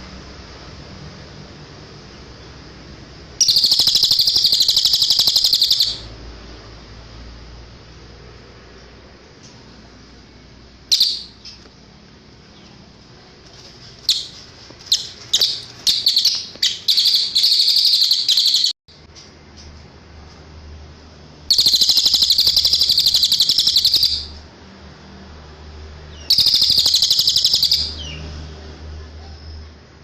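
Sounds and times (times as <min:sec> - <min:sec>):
songbird singing trills: 0:03.4 - 0:06.1, 0:10.9 - 0:11.7, 0:14.0 - 0:18.8, 0:21.5 - 0:24.4, 0:26.1 - 0:28.3.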